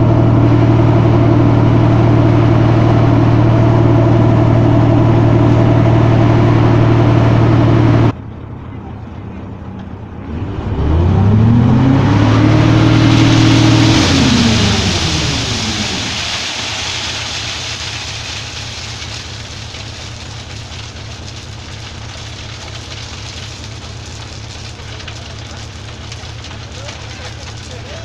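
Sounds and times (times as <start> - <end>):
diesel engine revving: 0.0 - 8.2, 10.0 - 27.8
strong hiss: 12.8 - 19.9.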